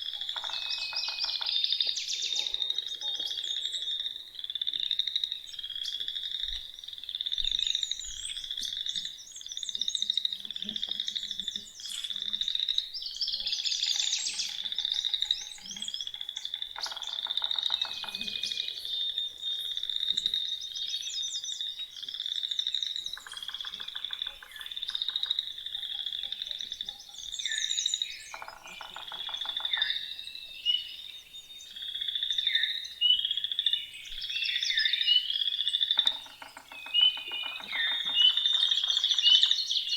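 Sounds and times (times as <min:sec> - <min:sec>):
low pulsing frog trills: 0:00.0 - 0:20.9, 0:21.6 - 0:30.2
frogs calling in trills: 0:00.0 - 0:39.9
songbirds singing: 0:00.0 - 0:39.9.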